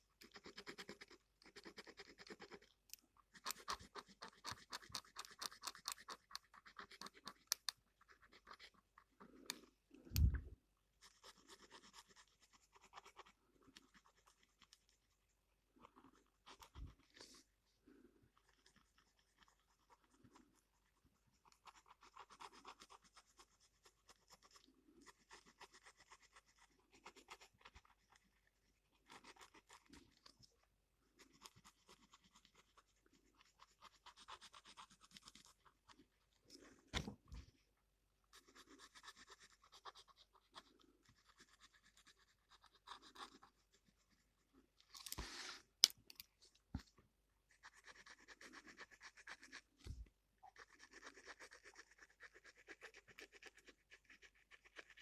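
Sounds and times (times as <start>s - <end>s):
pen scratching on paper: 0.2s - 2.7s, 3.3s - 9.4s, 11.0s - 15.0s, 18.5s - 30.2s, 31.2s - 36.0s, 38.3s - 44.2s, 47.5s - 55.0s.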